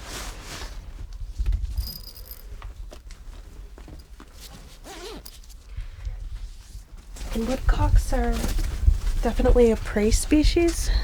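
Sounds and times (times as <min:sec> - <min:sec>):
light rustling: 0:01.4 - 0:05.7.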